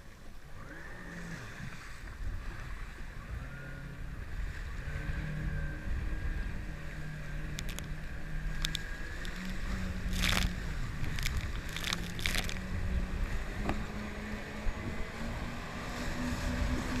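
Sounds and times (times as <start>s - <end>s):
jet ski engine running: 0.0s - 17.0s
low wind: 0.0s - 17.0s
water rumble: 0.0s - 17.0s.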